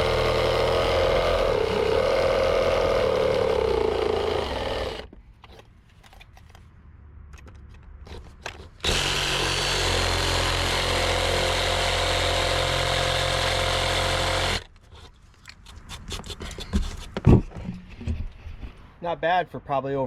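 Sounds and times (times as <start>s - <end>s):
reciprocating saw cutting wood: 0.0s - 5.1s, 8.8s - 14.7s.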